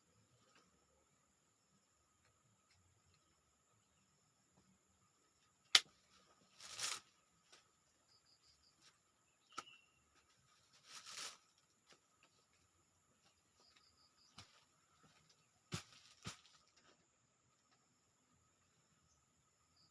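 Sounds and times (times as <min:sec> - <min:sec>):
short scraping rustle: 0:06.5 - 0:07.1, 0:10.6 - 0:11.6.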